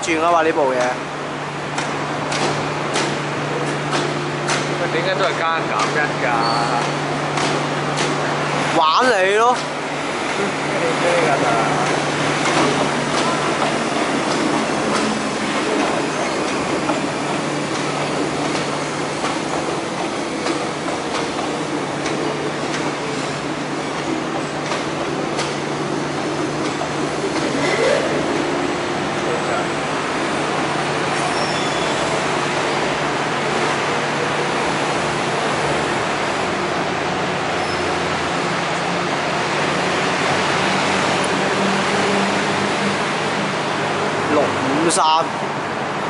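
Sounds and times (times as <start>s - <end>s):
electric train rumbling hum: 0.0s - 46.0s
train wheels clicking: 1.7s - 8.2s, 11.2s - 28.6s.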